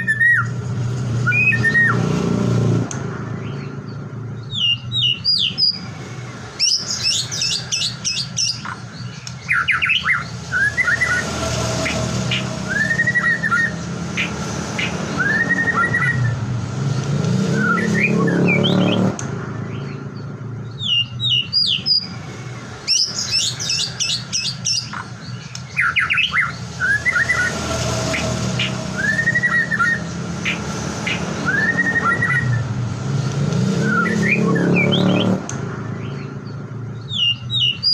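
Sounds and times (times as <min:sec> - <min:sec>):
bird rapid high chattering: 0:06.5 - 0:16.4, 0:22.8 - 0:32.7
bird clear arching whistles: 0:11.8 - 0:16.4, 0:28.1 - 0:32.6.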